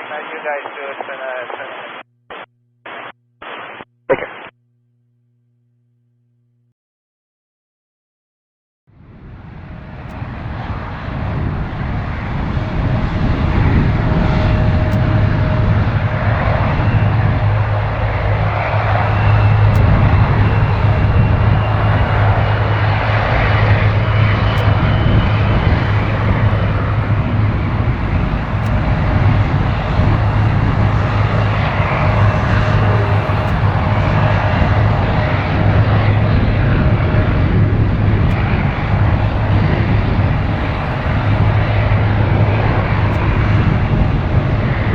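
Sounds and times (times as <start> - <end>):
jet engines running: 9.3 - 44.9.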